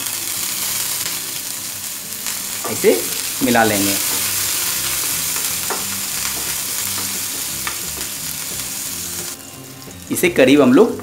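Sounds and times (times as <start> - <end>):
spices sizzling in hot oil: 0.0 - 11.0
spatula scraping and tapping pan: 5.3 - 8.7.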